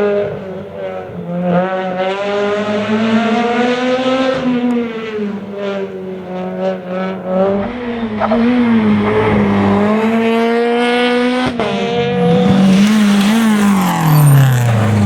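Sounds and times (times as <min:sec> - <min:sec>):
rally car engine passing: 0:00.0 - 0:15.0
sharp cracks: 0:12.1 - 0:15.0.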